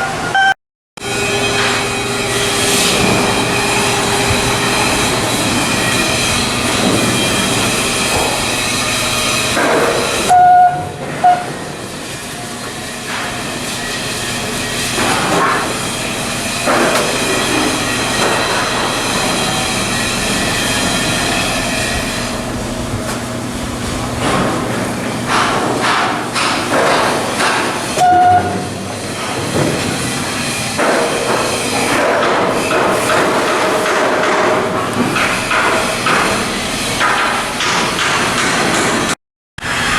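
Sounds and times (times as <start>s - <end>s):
loud warning beep: 0.0s - 0.6s, 10.2s - 11.4s
heavy machinery running: 1.0s - 39.9s.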